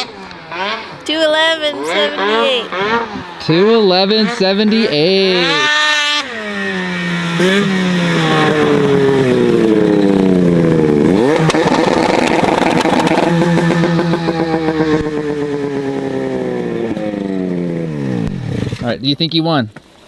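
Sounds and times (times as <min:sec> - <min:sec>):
snowmobile engine revving: 0:00.0 - 0:19.6.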